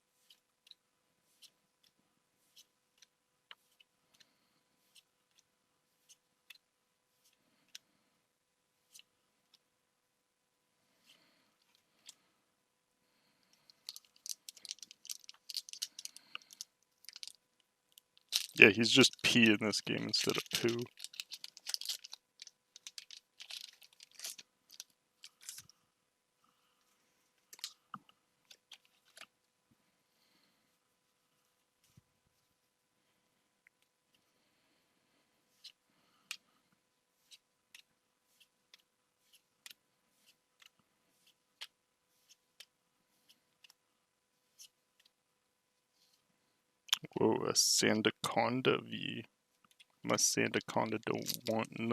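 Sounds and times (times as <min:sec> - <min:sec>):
faint steady hum: 0:00.0 - 0:51.9
cards clicking and sliding: 0:19.2 - 0:22.1.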